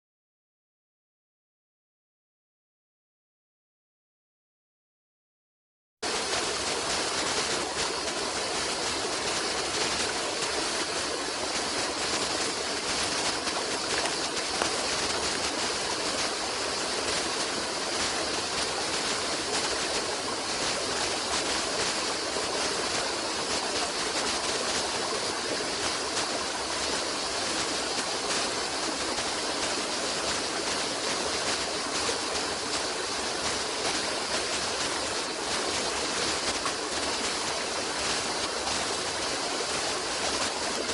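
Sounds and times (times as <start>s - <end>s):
water rushing: 6.0s - 40.9s.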